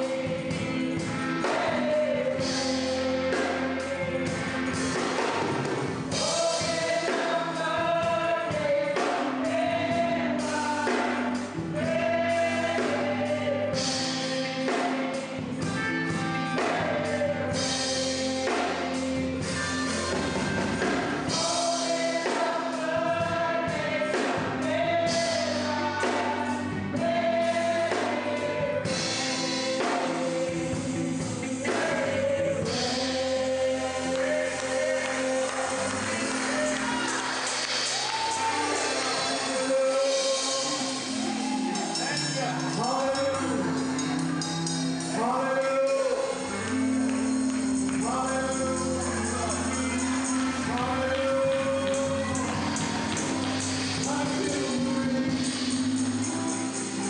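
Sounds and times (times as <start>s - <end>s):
gospel choir singing: 0.0s - 57.0s
held chords: 0.0s - 57.0s
instrumental accompaniment: 0.0s - 57.0s
tambourine shaking: 32.7s - 57.0s.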